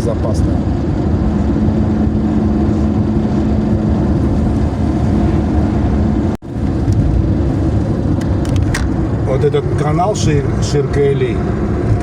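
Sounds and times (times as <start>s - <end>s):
car engine and road rumble: 0.0s - 12.0s
hum: 0.9s - 9.2s.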